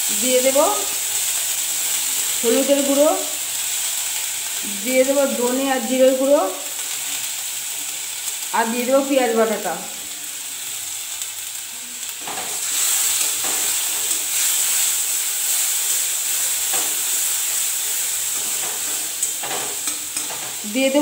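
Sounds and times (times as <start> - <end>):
paste sizzling in hot oil: 0.0 - 21.0.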